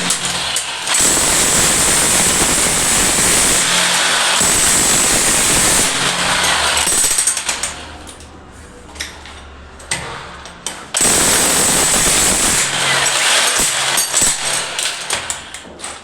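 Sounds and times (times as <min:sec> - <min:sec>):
jackhammer running: 0:00.0 - 0:08.0, 0:10.9 - 0:15.6.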